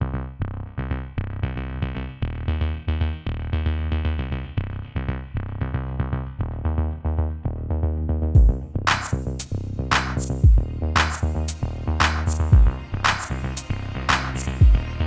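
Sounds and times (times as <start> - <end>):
electronic synthesizer music: 8.4 - 15.0.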